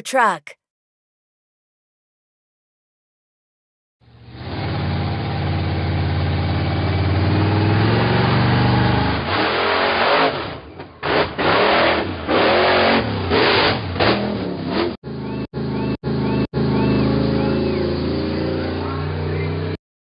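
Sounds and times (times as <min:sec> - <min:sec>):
monster truck engine revving: 0:04.2 - 0:19.8.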